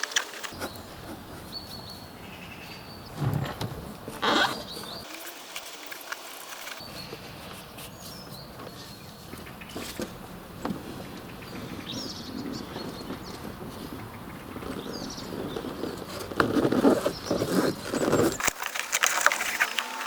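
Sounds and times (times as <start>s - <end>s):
rustling handling noise: 12.8s - 20.0s.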